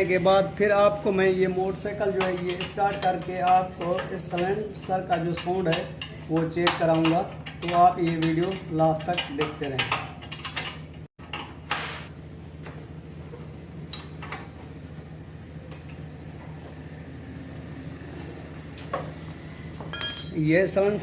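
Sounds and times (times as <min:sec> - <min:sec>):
metal clinks of spanner: 0:19.9 - 0:20.5.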